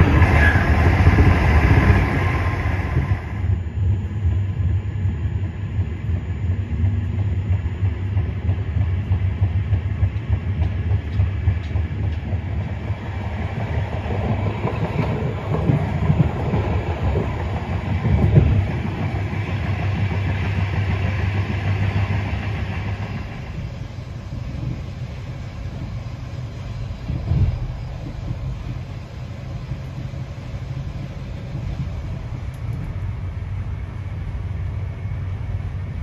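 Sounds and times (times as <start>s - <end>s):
train rumbling on rails: 0.0s - 36.0s
wheels clattering over rail joints: 6.8s - 33.2s.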